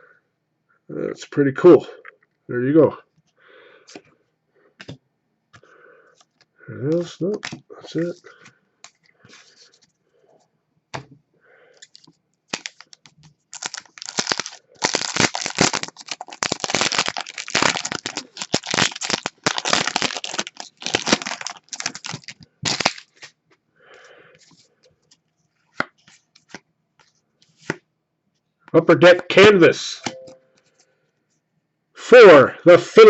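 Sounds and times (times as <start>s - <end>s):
foil wrapper tearing and crinkling: 11.8s - 23.4s.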